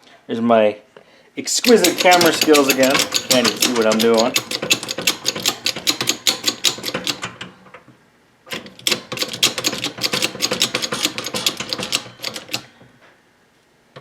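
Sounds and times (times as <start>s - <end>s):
ratchet wrench clicking: 1.6s - 7.3s, 8.8s - 12.7s.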